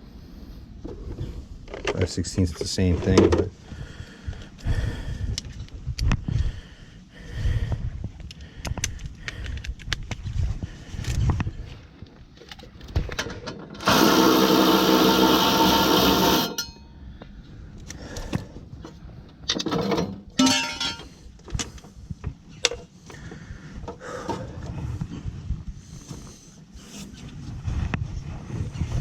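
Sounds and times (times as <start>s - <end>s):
power tool on a bolt: 13.8s - 16.8s
hand tools clicking and knocking: 19.5s - 21.8s.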